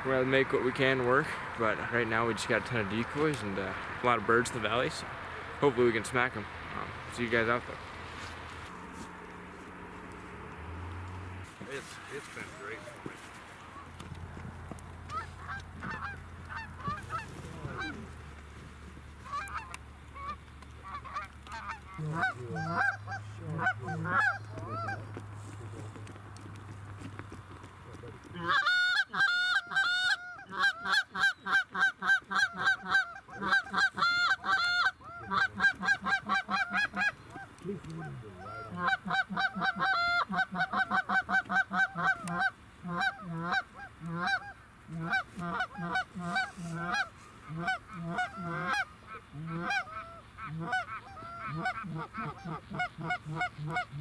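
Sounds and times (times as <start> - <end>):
goose honking: 1.1 - 26.1, 28.0 - 54.0
goose grunting: 15.1 - 18.2, 19.2 - 26.0, 28.0 - 54.0.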